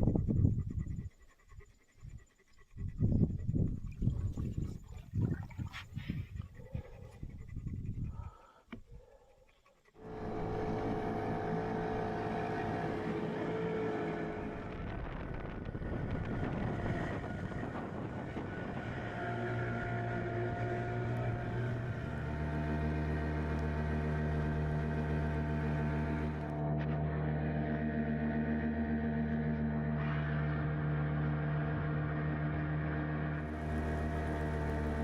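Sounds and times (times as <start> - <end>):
boat motor running: 10.0 - 35.0.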